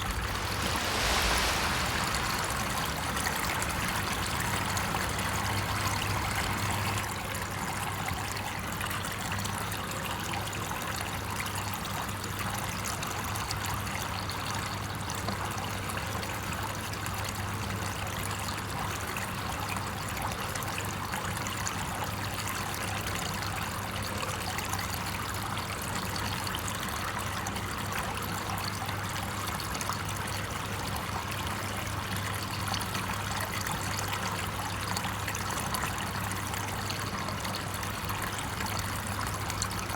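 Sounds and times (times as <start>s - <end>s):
low steady hum: 0.0s - 7.0s
water flowing: 0.0s - 7.4s.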